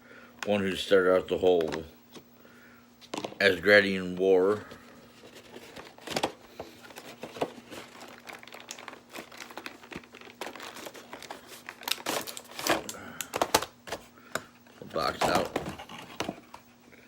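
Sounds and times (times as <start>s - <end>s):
packaging crinkling: 4.6s - 14.1s, 14.8s - 16.6s.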